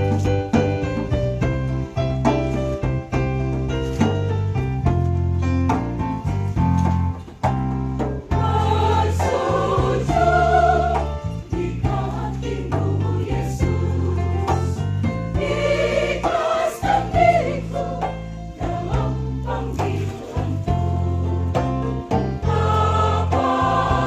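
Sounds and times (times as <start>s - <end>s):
instrumental accompaniment: 0.0s - 24.0s
choir singing a hymn: 8.3s - 24.0s.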